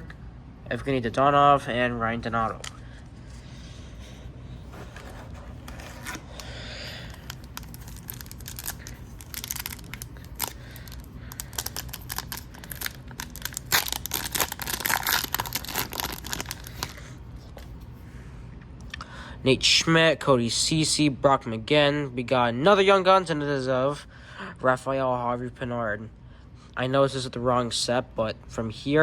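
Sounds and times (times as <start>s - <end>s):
wrapper tearing and crinkling: 5.6s - 17.1s.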